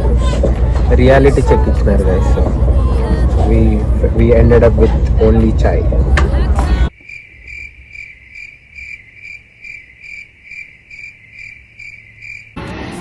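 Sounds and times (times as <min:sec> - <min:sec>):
cricket chirping: 0:06.9 - 0:12.6.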